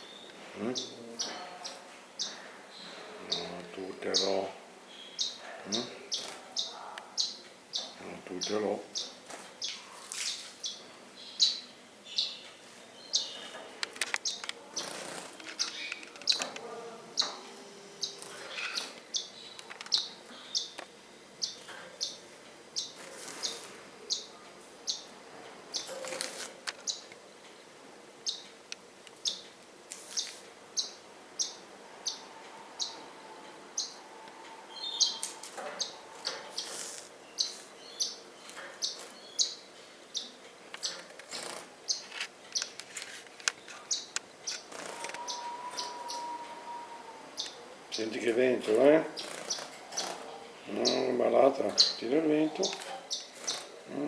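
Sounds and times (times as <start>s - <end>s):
longer bird calls: 14.2s - 20.8s, 29.2s - 42.7s, 43.6s - 54.0s.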